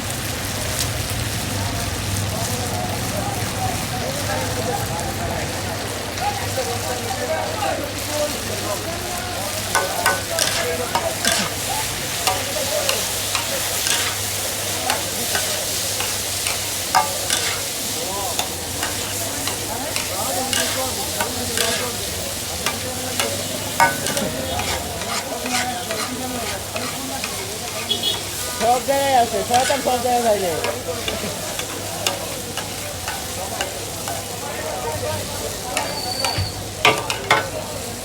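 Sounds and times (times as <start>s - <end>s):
meat sizzling in hot oil: 0.0s - 38.0s.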